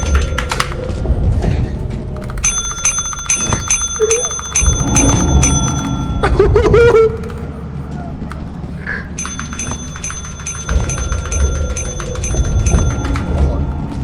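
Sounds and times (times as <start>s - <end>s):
small metal bell dinging: 2.4s - 6.7s, 9.2s - 14.0s.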